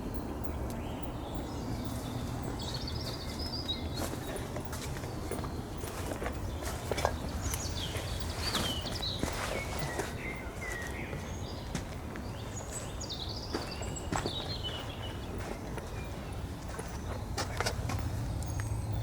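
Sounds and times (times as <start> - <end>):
footsteps: 4.0 - 18.1.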